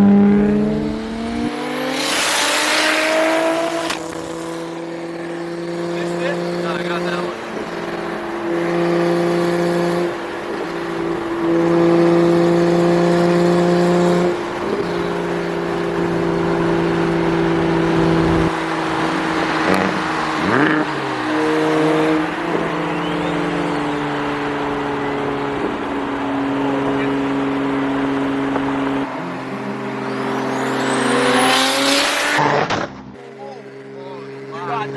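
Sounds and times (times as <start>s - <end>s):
car engine running: 0.0s - 34.9s
road noise: 0.0s - 34.9s.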